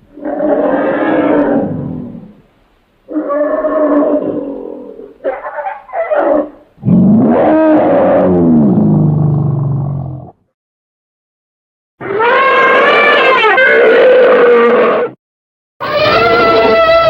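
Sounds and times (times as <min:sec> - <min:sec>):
elephant roars: 0:06.8 - 0:10.4.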